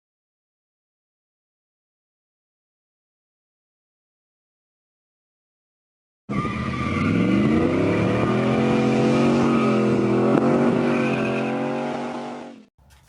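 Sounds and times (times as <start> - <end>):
engine revving: 6.3 - 12.9.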